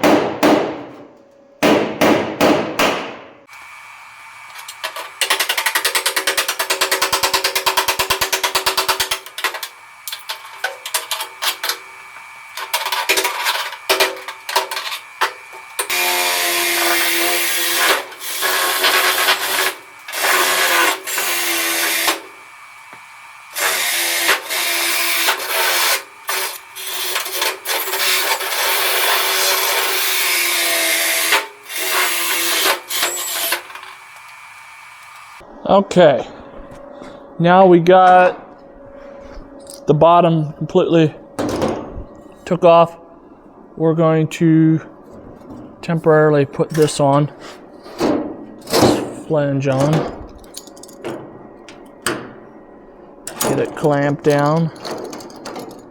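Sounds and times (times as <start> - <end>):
power tool cutting sheet metal: 3.6 - 35.4.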